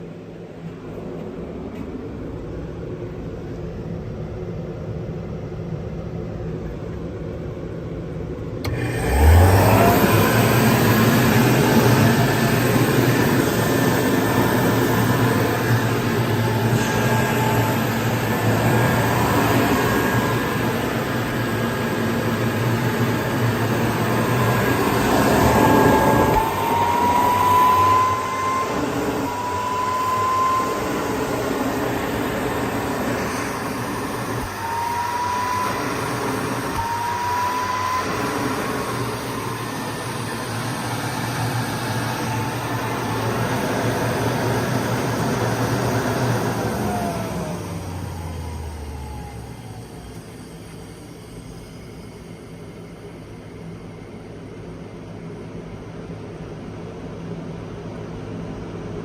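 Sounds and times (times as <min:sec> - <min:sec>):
rushing airflow: 0:08.6 - 0:47.9
dust collector motor running: 0:08.6 - 0:53.2
rising whining tone: 0:08.6 - 0:54.6.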